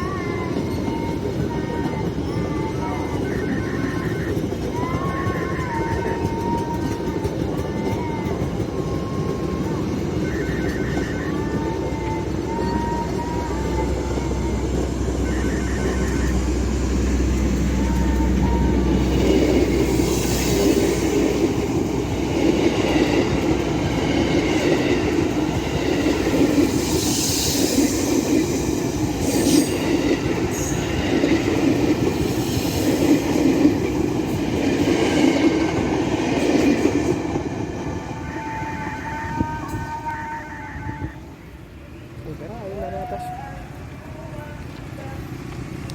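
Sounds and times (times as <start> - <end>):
train wheels rumbling on rails: 0.0 - 45.9
high hissing squeals: 9.6 - 22.0, 24.6 - 33.3.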